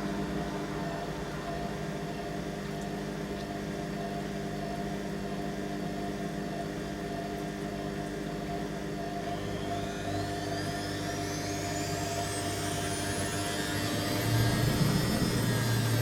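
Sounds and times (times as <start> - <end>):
faint rising whine: 0.0 - 2.8, 9.0 - 16.0
washing machine spinning: 0.0 - 16.0.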